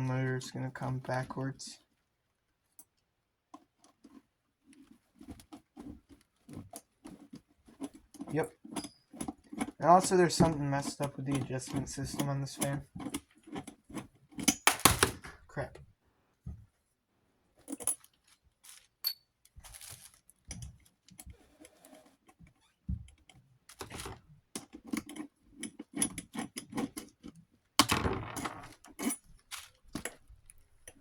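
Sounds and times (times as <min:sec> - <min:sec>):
parts clattering: 0:04.8 - 0:15.8
small parts clicking and clinking: 0:17.6 - 0:22.1, 0:23.2 - 0:31.0.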